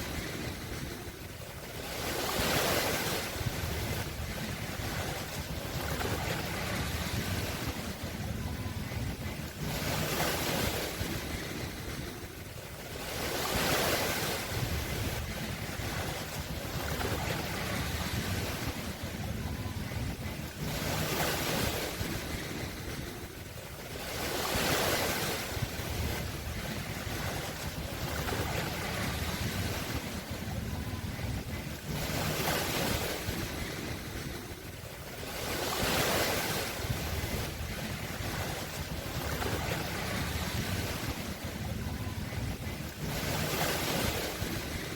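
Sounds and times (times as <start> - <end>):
waves washing onto shore: 0.0 - 44.9
low steady rumble: 3.2 - 24.6, 25.4 - 44.9.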